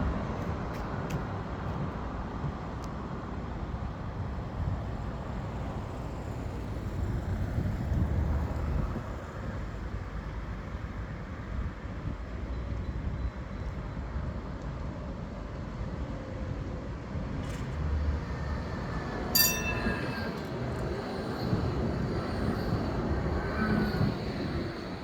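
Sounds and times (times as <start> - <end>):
tram rumbling on rails: 0.0 - 25.0
sharp metallic clang: 19.4 - 20.6.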